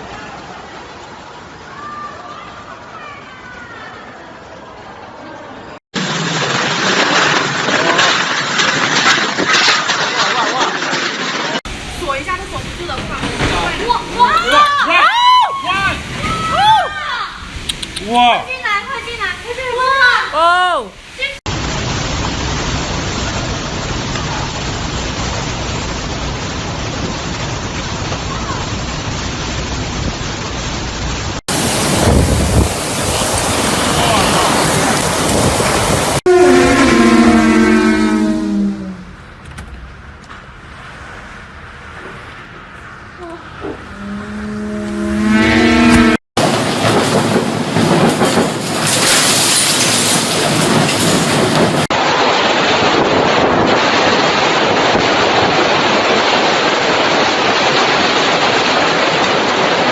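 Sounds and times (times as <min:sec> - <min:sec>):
storm wind and rain: 0:00.0 - 0:59.9
wind buffeting microphone: 0:31.6 - 0:37.4.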